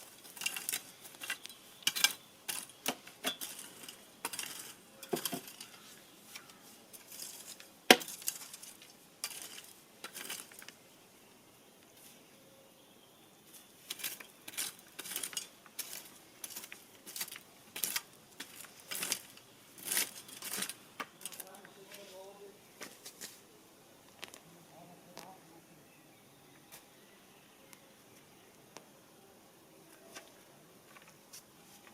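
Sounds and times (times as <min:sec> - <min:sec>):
hard objects clinking and clattering: 0:00.0 - 0:05.8, 0:06.4 - 0:10.8, 0:13.9 - 0:21.5.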